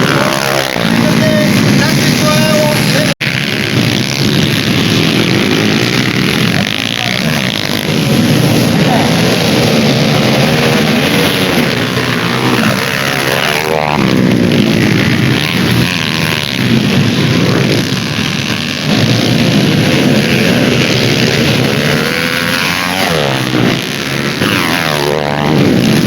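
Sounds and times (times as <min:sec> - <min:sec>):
dirt bike engines revving: 0:00.0 - 0:26.0
dirt bike passing by: 0:00.0 - 0:26.0.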